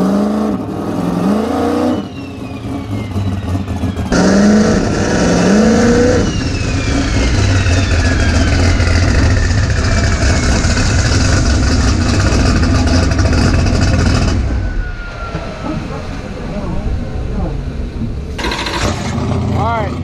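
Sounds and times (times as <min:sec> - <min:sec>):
drag race car engine revving: 0:00.0 - 0:14.8, 0:18.3 - 0:20.0
high engine whistle: 0:01.5 - 0:11.9, 0:14.0 - 0:15.8.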